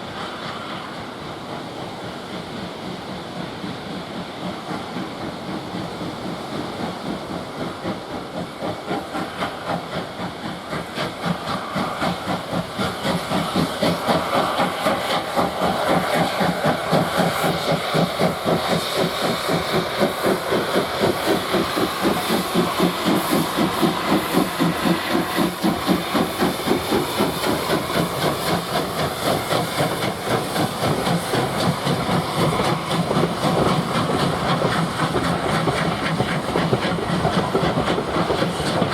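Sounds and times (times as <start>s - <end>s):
steam locomotive chuffing: 0.0s - 38.9s.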